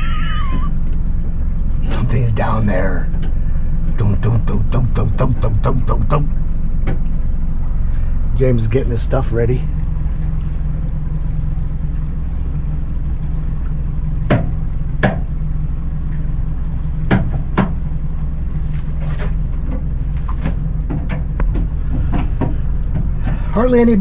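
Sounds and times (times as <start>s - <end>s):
boat motor droning: 0.0s - 24.0s
sharp knocks: 14.3s - 15.3s, 17.1s - 17.8s, 19.7s - 23.5s.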